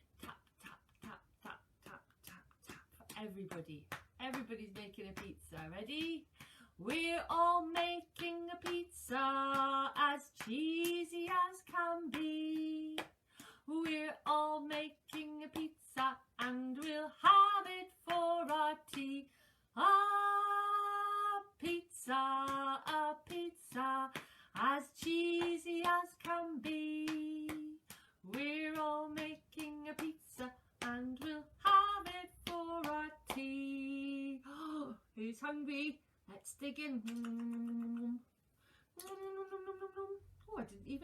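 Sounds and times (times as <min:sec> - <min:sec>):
woman singing: 0:00.0 - 0:38.3, 0:39.0 - 0:41.0.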